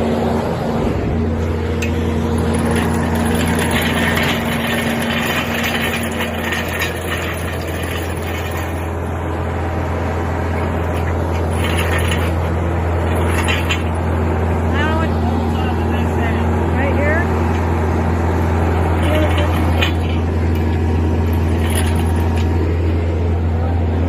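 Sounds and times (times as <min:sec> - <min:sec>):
engine idling: 0:00.0 - 0:24.0
light rattling: 0:01.8 - 0:09.0, 0:10.5 - 0:14.1, 0:18.7 - 0:22.6.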